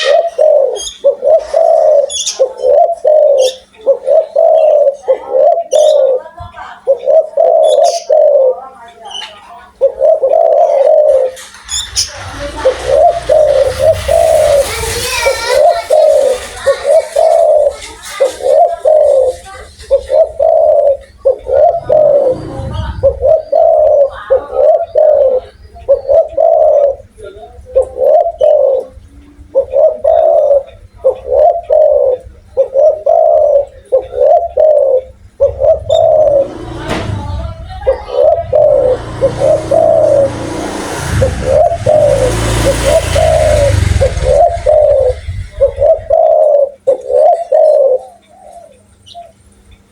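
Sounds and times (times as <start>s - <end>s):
dove cooing: 0.0s - 49.6s
rushing noise: 11.6s - 16.3s, 21.5s - 24.2s, 35.4s - 46.2s.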